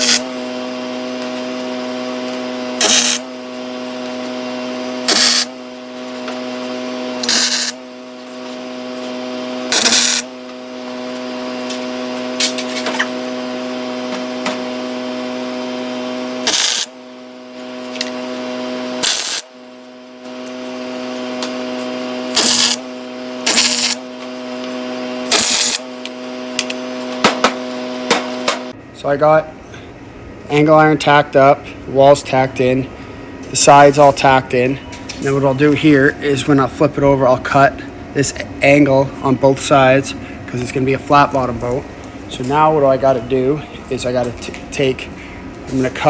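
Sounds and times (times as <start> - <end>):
short bursts of welding arc noise: 0.0 - 0.3, 2.8 - 3.3, 5.0 - 9.1, 9.7 - 10.4, 16.4 - 17.0, 18.9 - 20.6, 22.3 - 26.7
welding machine electrical hum: 0.0 - 46.0.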